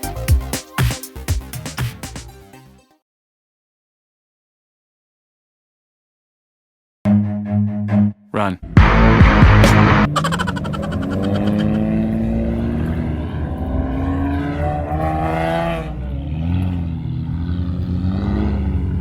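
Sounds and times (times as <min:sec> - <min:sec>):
car engine accelerating hard: 0:08.8 - 0:19.0.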